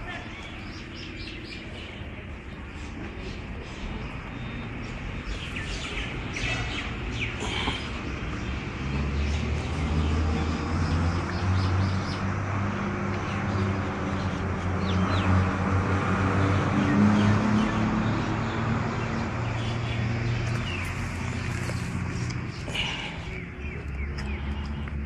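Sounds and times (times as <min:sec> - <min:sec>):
small birds chirping: 0:00.0 - 0:10.2, 0:16.8 - 0:25.0.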